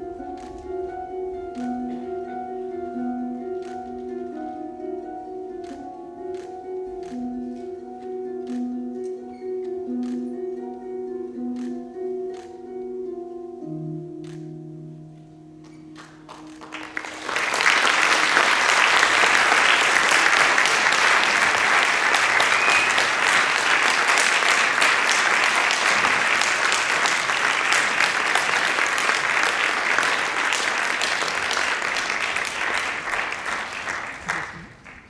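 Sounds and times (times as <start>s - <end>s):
music: 0.0s - 35.0s
audience applauding: 16.0s - 35.0s.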